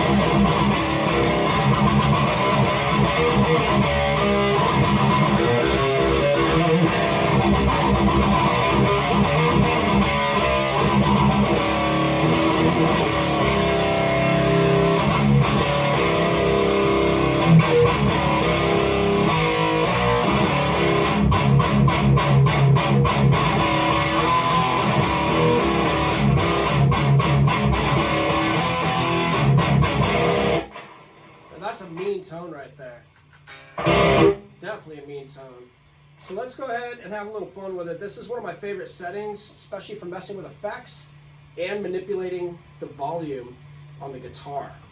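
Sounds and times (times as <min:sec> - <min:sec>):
distorted electric guitar riffs: 0:00.0 - 0:32.2, 0:33.4 - 0:34.7.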